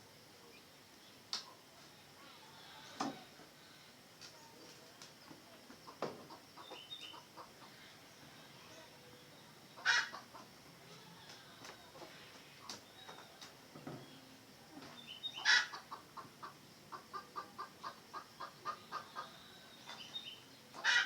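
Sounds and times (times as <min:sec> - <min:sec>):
junglefowl clucking and calling: 0:05.9 - 0:07.8, 0:09.8 - 0:10.5, 0:15.3 - 0:20.0, 0:20.7 - 0:21.0.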